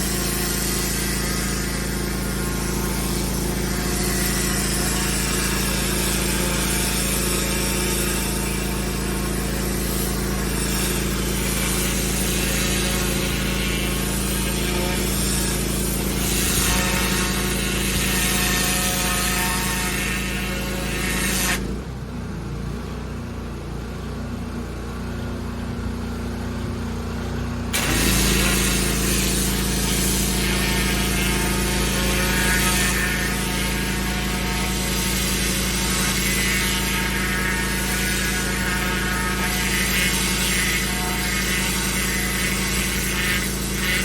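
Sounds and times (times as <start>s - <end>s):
high-pressure jet hissing on paving: 0.0s - 21.7s, 27.7s - 44.0s
pressure washer engine hum: 0.0s - 44.0s.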